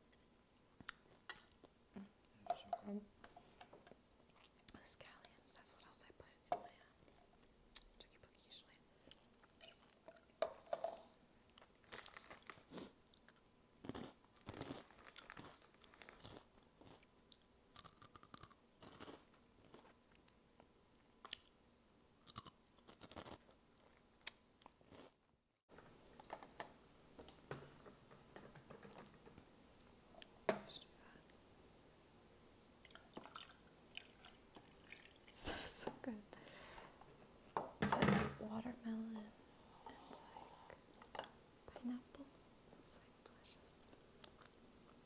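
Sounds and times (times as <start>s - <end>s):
crunchy snack being chewed: 11.5s - 20.4s, 21.2s - 21.6s, 22.2s - 25.2s.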